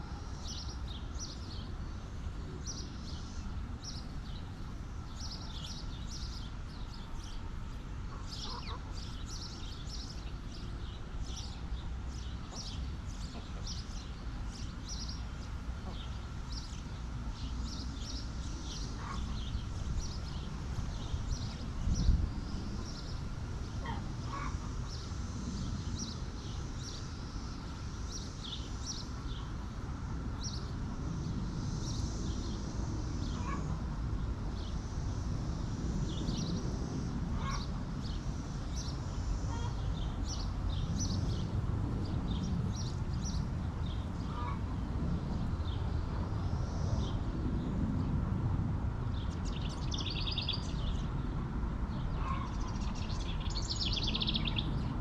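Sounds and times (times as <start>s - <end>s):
high chirps of small birds: 49.1s - 51.3s, 51.9s - 55.0s.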